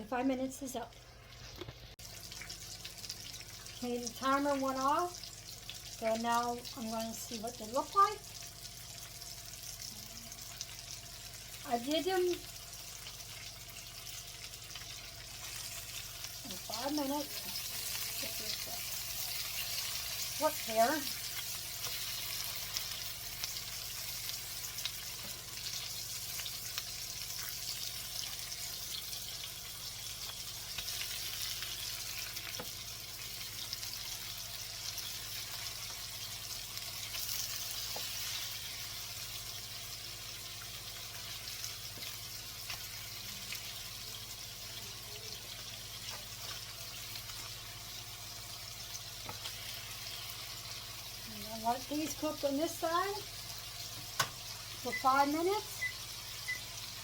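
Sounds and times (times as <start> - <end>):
patties sizzling in a pan: 0.0 - 57.0.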